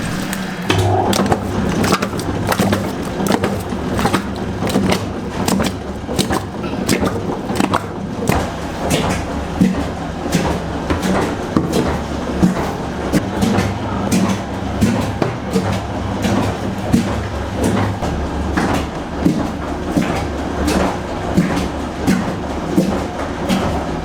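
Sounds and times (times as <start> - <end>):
machine humming: 0.0 - 14.8.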